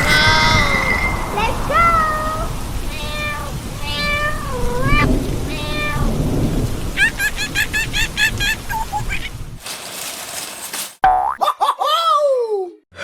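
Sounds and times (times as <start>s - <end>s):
low rumbling noise: 0.0s - 6.7s.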